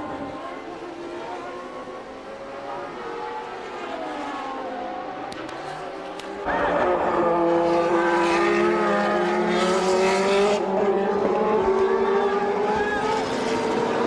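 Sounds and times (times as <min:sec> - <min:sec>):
racing car engine high revs: 0:06.4 - 0:14.0.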